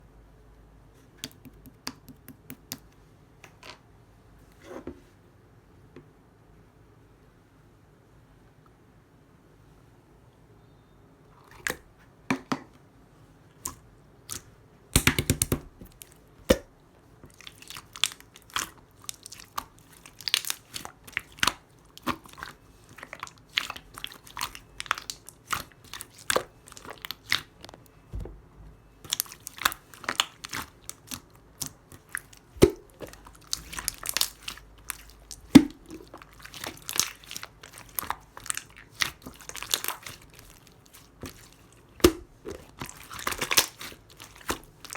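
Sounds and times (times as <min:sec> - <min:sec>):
slime squished by hand popping: 0:15.0 - 0:16.7, 0:42.0 - 0:44.7.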